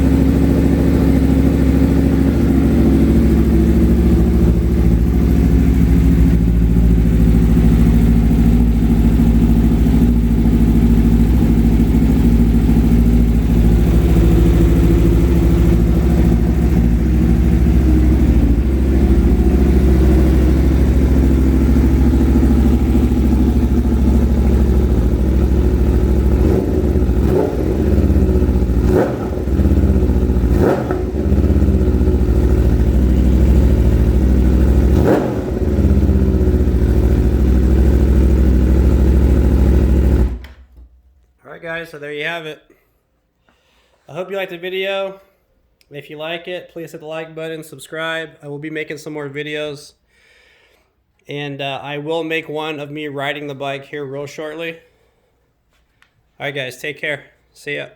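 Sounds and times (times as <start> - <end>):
motorcycle engine idling and revving: 0.0 - 40.8.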